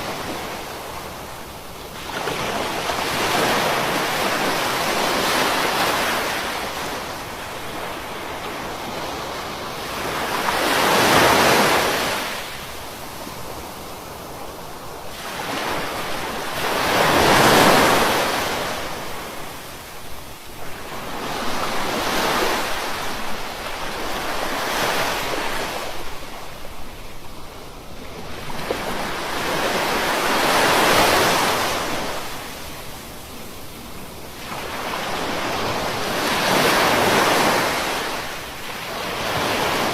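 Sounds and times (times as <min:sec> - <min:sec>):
ocean waves breaking: 0:15.1 - 0:19.4, 0:34.3 - 0:39.9.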